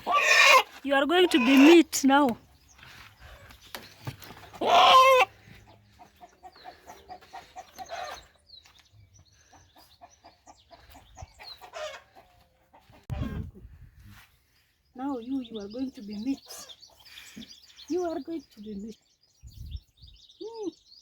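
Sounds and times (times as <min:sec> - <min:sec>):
rooster squawking: 0:00.0 - 0:01.8, 0:04.5 - 0:05.3.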